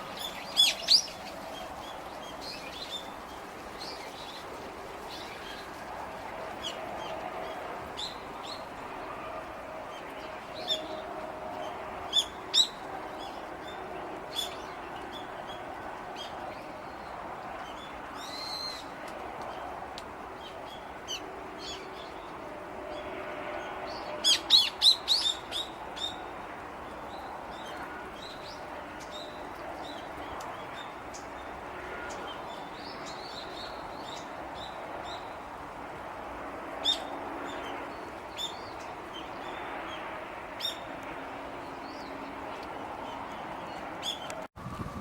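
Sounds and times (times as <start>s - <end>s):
small birds chirping: 0.2s - 4.4s.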